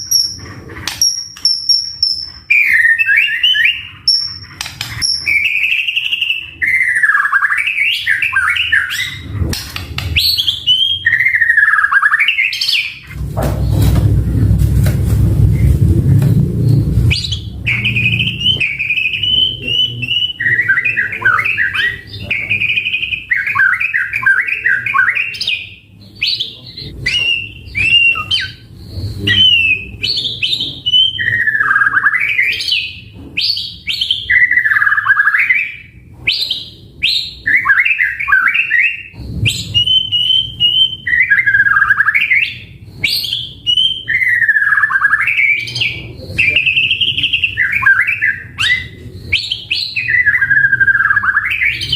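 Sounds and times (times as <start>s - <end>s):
songbird singing varied phrases: 17.1s - 51.9s.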